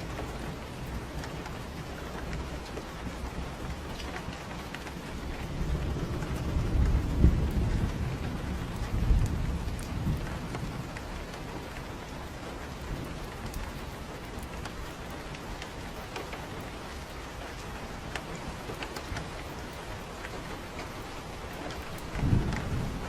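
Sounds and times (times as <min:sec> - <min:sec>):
thunder rumbling: 0:00.0 - 0:15.9, 0:16.5 - 0:23.0
rain pattering: 0:00.0 - 0:23.0
sharp raindrops: 0:00.0 - 0:23.0.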